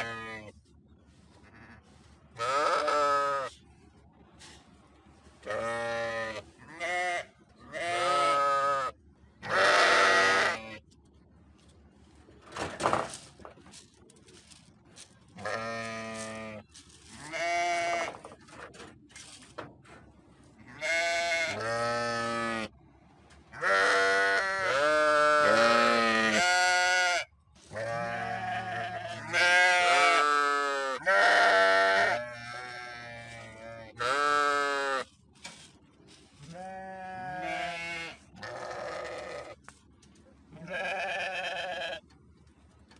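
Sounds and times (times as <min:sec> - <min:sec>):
sheep bleating: 0:00.0 - 0:00.5, 0:02.4 - 0:03.6, 0:05.4 - 0:10.8, 0:15.4 - 0:16.6, 0:17.2 - 0:18.2, 0:20.6 - 0:22.7, 0:23.5 - 0:35.1, 0:36.4 - 0:39.6, 0:40.6 - 0:42.0.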